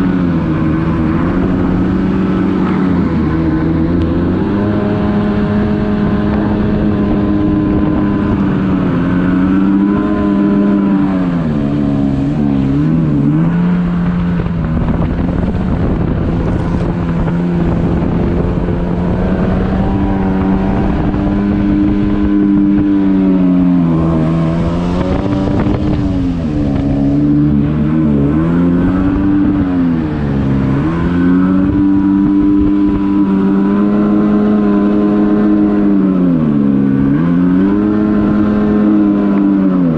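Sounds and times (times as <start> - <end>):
personal watercraft engine running: 0.0 - 39.9.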